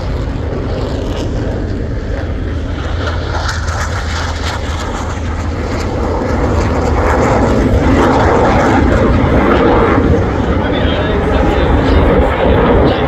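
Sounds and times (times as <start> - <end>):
aircraft flying past: 0.0 - 13.0.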